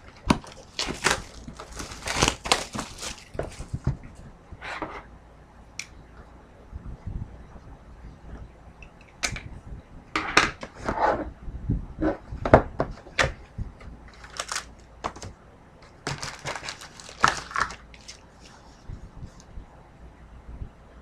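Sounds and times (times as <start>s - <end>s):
crinkling of wrapper and cardboard: 0.0s - 4.1s, 14.1s - 18.6s.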